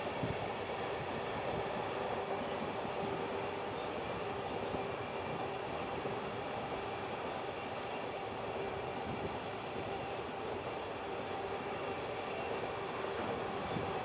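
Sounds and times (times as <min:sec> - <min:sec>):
train wheels rolling on rail: 0:00.0 - 0:14.0
faint steady tone: 0:01.9 - 0:05.8.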